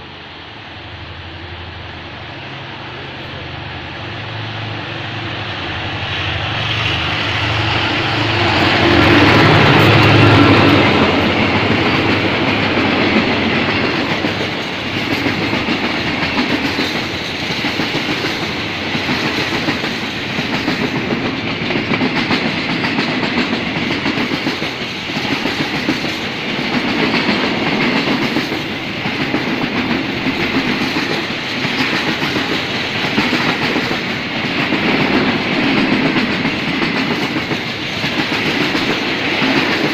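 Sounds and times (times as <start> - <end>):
diesel locomotive passing: 0.0 - 39.9
train wheels clacking over rail joints: 6.6 - 39.9.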